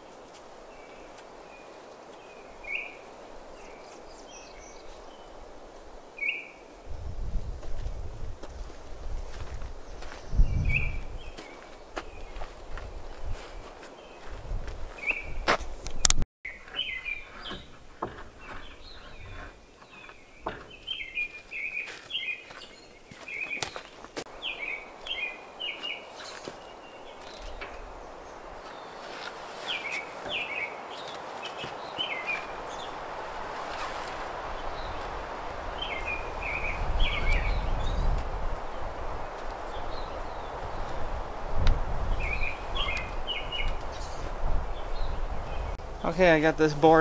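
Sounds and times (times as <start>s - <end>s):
songbird chirping: 0.0s - 7.8s, 8.4s - 47.0s
sharp knocks: 20.4s - 20.9s.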